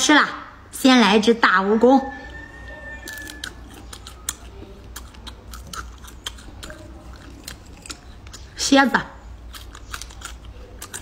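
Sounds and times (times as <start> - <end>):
crunchy chewing: 2.2 - 11.0.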